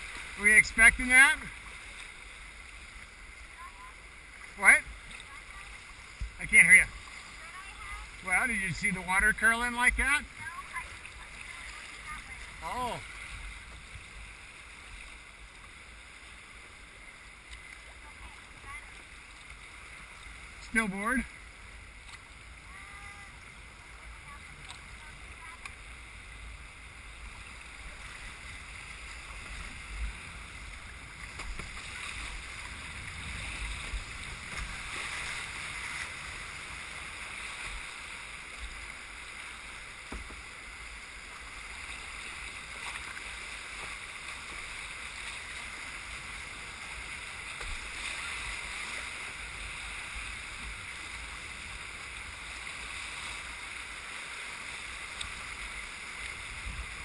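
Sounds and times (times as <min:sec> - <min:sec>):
whitewater river rushing: 0:00.0 - 0:19.3.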